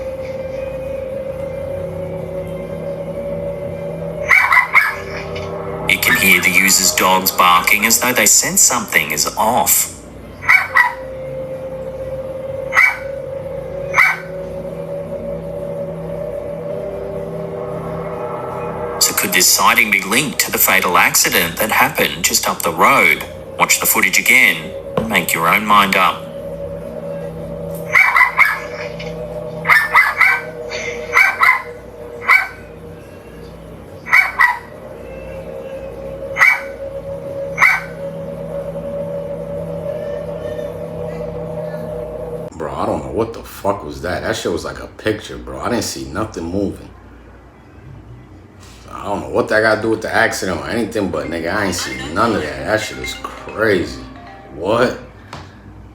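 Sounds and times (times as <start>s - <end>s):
steady low hum: 0.0s - 55.9s
dogs barking: 4.2s - 5.3s, 10.4s - 11.1s, 12.7s - 13.2s, 13.9s - 14.4s, 27.8s - 29.0s, 29.6s - 32.7s, 34.0s - 34.8s, 36.4s - 36.8s, 37.6s - 38.0s
dog barking: 10.4s - 11.0s, 31.1s - 32.6s, 34.1s - 34.7s.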